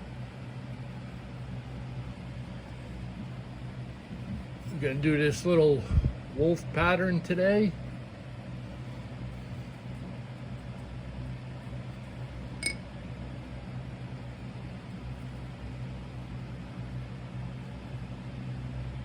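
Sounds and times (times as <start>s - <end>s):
electric furnace humming: 0.0s - 19.0s
short metallic clink: 12.6s - 12.8s.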